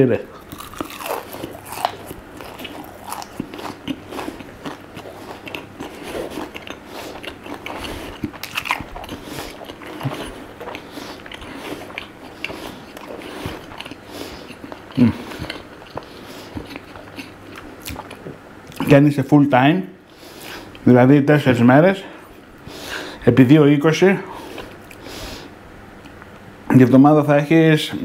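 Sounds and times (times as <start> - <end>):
crisp food crunching: 0.3 - 18.9.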